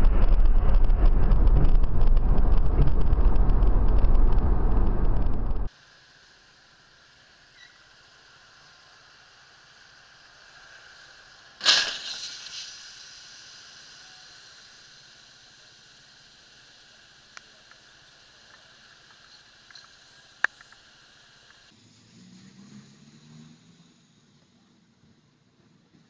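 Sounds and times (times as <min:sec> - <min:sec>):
road hiss: 0:05.7 - 0:26.0.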